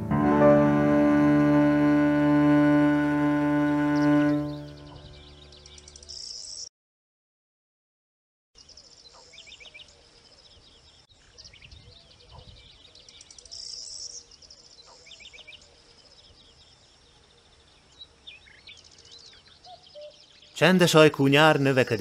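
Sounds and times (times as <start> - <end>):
small birds chirping: 4.0 - 6.7, 8.6 - 22.0.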